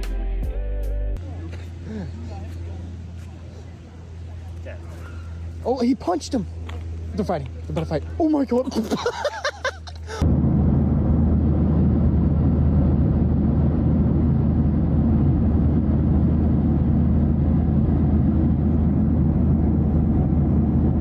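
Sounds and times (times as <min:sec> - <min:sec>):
loud low rumble: 0:10.2 - 0:21.0.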